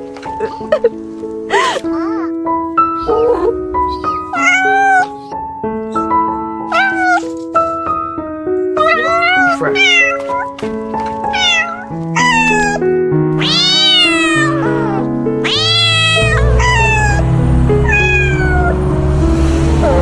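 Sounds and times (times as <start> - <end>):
cat meowing: 1.5 - 7.8, 8.8 - 10.6, 11.2 - 18.8.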